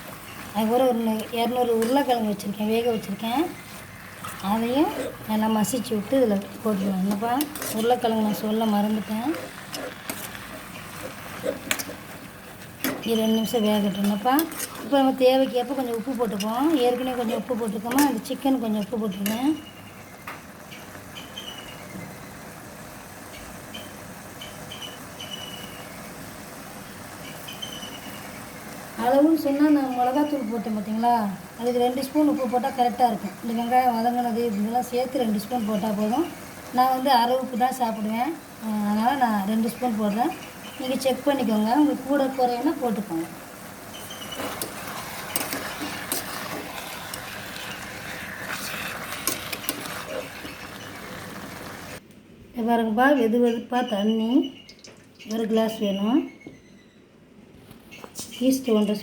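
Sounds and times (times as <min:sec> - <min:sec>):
food sizzling in a frying pan: 0:00.0 - 0:52.0
spoon scraping a pan: 0:03.0 - 0:20.0, 0:43.9 - 0:51.8.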